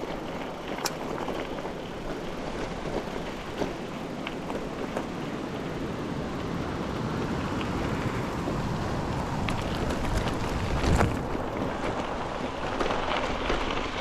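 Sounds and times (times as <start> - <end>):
small clicks and rattles: 0.0 - 6.6
bicycle tyre rumble: 0.0 - 14.0
wind on microphone: 5.7 - 13.6.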